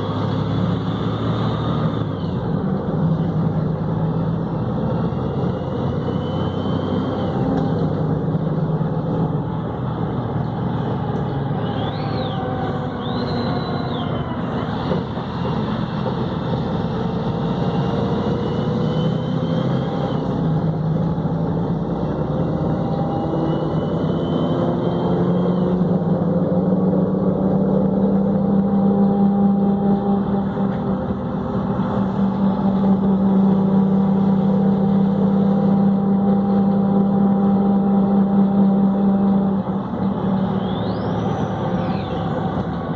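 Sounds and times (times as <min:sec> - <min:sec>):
bus diesel engine running: 0:00.0 - 0:42.9
gearbox whine: 0:04.9 - 0:08.4, 0:09.0 - 0:16.5, 0:39.2 - 0:42.9.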